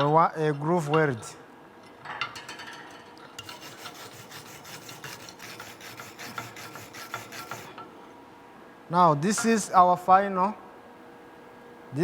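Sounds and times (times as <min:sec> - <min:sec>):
hand tool scraping steel plate: 0:03.4 - 0:07.8.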